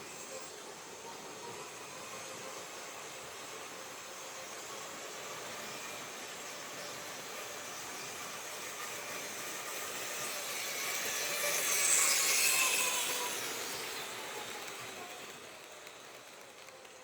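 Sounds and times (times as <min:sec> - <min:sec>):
small motor whining: 0:00.0 - 0:17.0
model train wheels rattling: 0:06.0 - 0:17.0.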